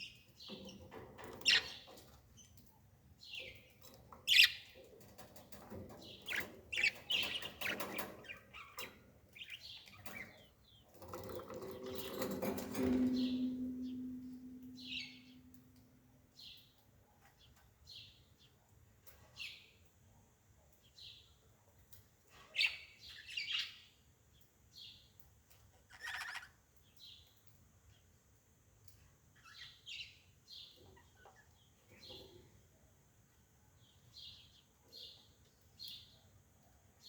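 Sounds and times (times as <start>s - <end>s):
bird chirping: 0.0s - 16.8s.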